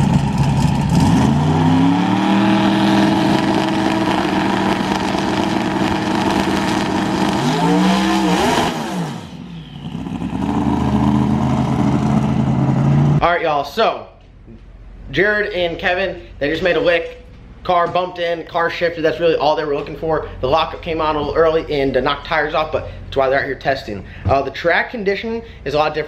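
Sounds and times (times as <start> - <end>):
drag car engine revving: 0.0 - 13.2.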